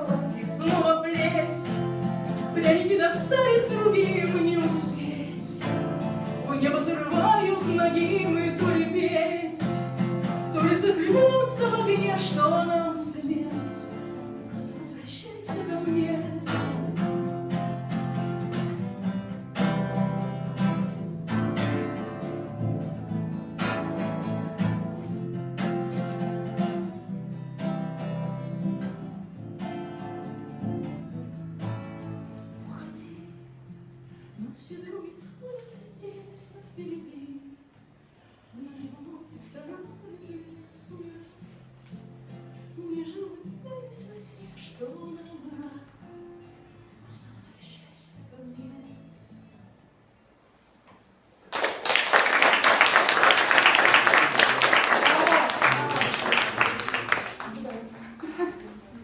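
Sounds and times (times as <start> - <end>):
woman singing: 0.0 - 17.1, 32.5 - 33.6, 34.4 - 37.8, 38.5 - 41.6, 42.6 - 46.4, 47.0 - 49.6
acoustic guitar strumming: 0.0 - 35.3.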